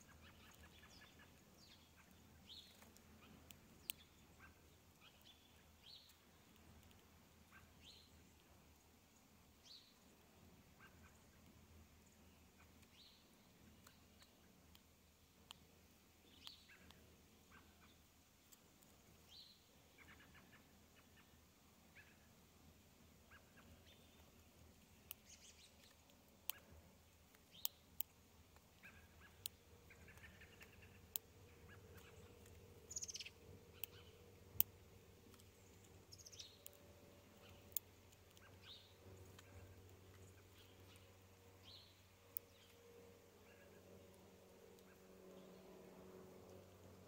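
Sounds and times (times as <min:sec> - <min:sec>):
faint bird chirps: 0:00.0 - 0:14.6, 0:16.2 - 0:18.1, 0:19.2 - 0:22.3, 0:23.2 - 0:26.8, 0:28.8 - 0:34.3, 0:35.2 - 0:42.8, 0:43.4 - 0:44.2
beak clicking on seeds: 0:00.1 - 0:08.7, 0:12.6 - 0:17.1, 0:23.4 - 0:42.8.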